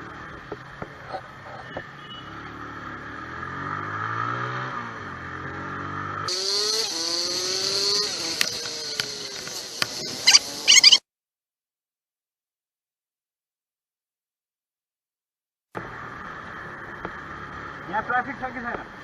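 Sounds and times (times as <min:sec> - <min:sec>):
higher-pitched engine climbing: 0:02.8 - 0:11.0.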